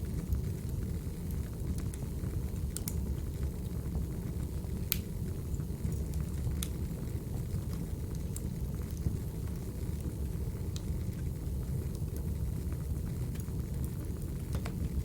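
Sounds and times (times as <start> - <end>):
wood fire crackling: 0.0 - 15.0
sharp pops and snaps: 4.9 - 5.1.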